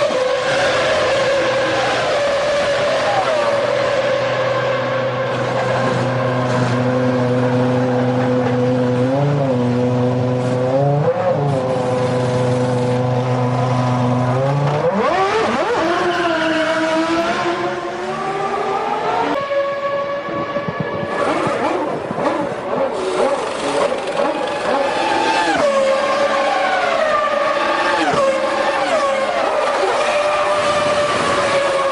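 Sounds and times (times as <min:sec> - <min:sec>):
racing car engine revving: 0:00.0 - 0:31.9.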